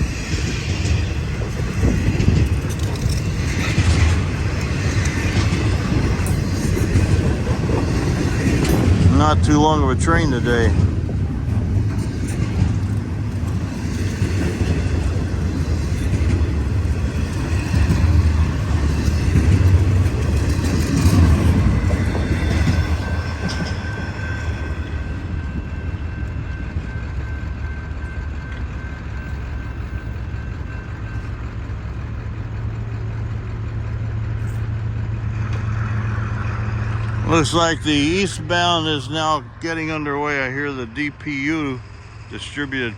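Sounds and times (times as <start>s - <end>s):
freight train rolling past: 0.0s - 42.9s
thin steady whine: 0.0s - 42.9s
diesel engine hum: 28.6s - 42.9s.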